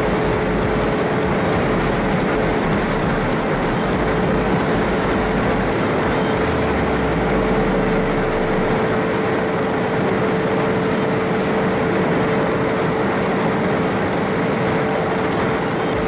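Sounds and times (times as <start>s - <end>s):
car road and wind noise: 0.0s - 16.0s
constant whine: 0.0s - 16.0s.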